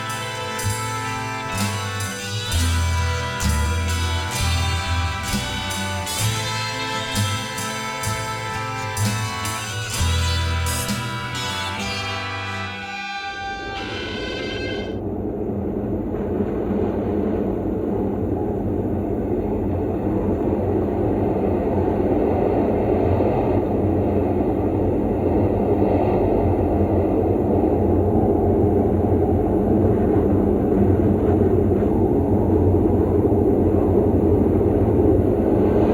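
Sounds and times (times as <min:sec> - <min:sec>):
dense rumbling noise: 0:14.1 - 0:35.9.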